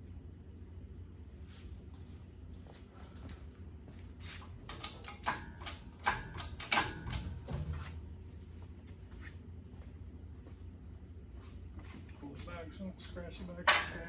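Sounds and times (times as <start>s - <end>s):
steady low hum: 0.0s - 14.0s
metallic clanks and knocks: 4.7s - 8.0s, 13.6s - 14.0s.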